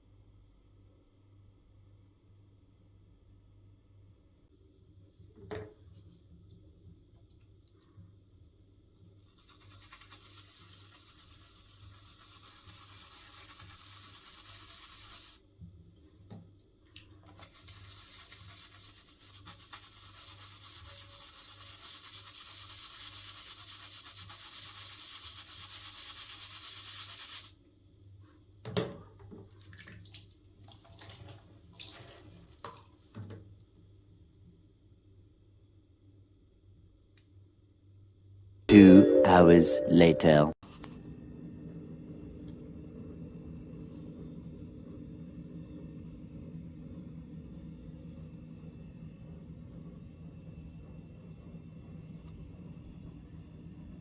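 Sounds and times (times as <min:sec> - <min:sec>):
brush scrubbing plastic: 0:09.3 - 0:15.4, 0:17.3 - 0:27.5.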